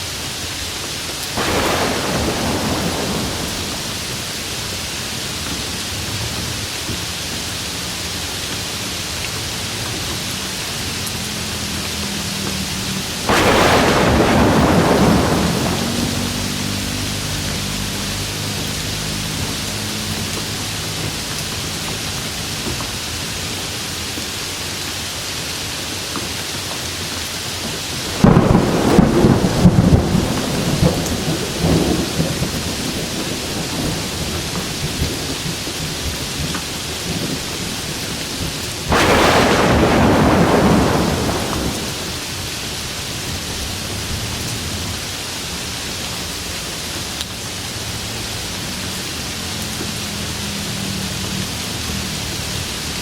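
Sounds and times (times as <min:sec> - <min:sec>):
steady rain: 0:00.0 - 0:53.0
thunder rumbling: 0:01.3 - 0:05.0, 0:13.0 - 0:19.9, 0:28.0 - 0:42.5.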